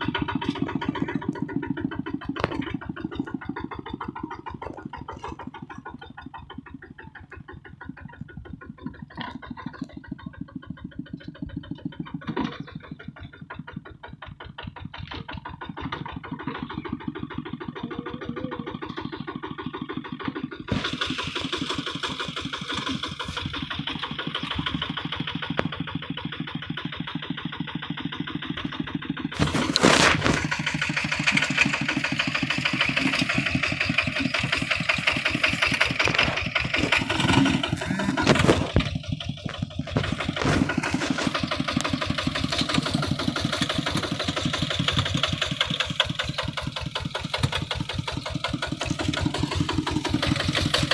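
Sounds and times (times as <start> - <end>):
diesel engine chugging: 0.0 - 50.9
loud engine burst: 20.6 - 23.6, 29.3 - 45.3.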